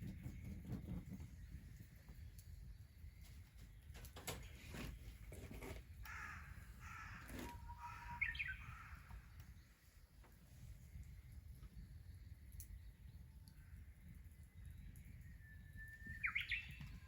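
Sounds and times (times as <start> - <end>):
crow cawing: 6.1 - 9.2.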